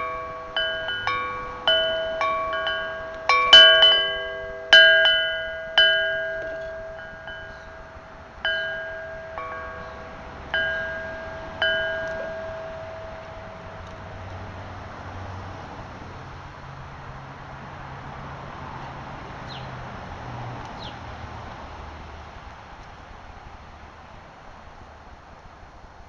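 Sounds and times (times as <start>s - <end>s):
chimes ringing: 0.0s - 15.4s.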